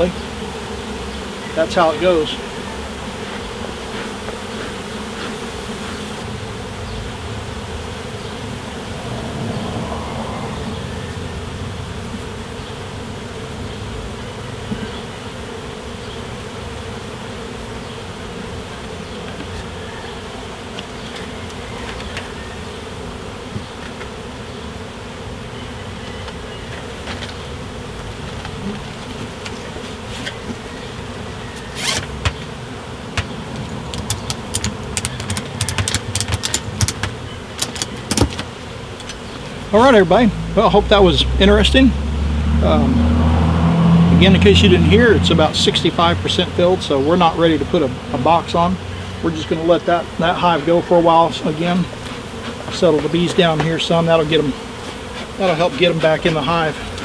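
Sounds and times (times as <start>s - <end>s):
bees buzzing: 0.0s - 57.0s
sharp clicks: 33.2s - 39.2s.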